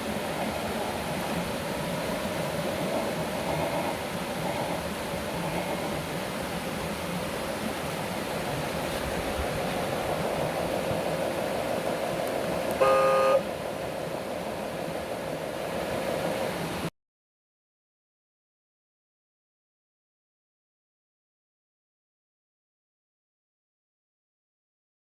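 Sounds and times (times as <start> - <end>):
steady whirring hiss: 0.0 - 16.9
short horn toot: 12.8 - 13.4.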